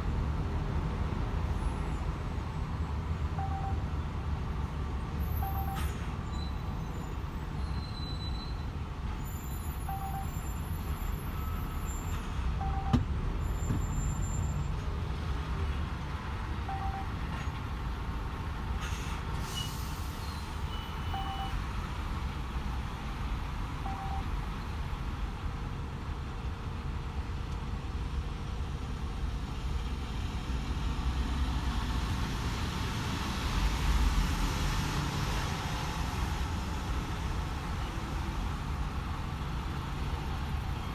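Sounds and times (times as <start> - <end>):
truck engine and tyre rumble: 0.0 - 40.9
faint electronic beeps: 3.4 - 3.8, 5.4 - 6.5, 9.9 - 10.4, 23.9 - 24.3.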